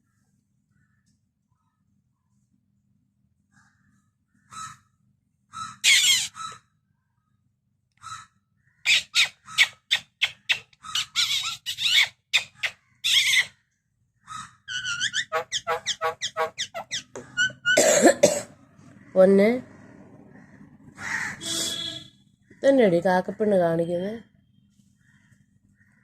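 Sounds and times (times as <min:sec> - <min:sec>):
crow calling: 0:04.4 - 0:04.9, 0:05.5 - 0:06.7, 0:08.0 - 0:09.8, 0:14.2 - 0:17.9, 0:20.3 - 0:22.7, 0:25.0 - 0:26.0.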